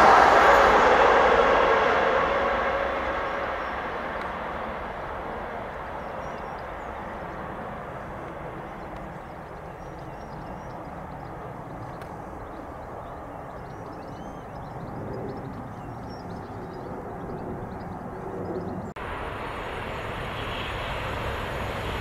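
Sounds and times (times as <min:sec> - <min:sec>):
train rumble: 0:00.0 - 0:22.0
small birds chirping: 0:05.4 - 0:19.0.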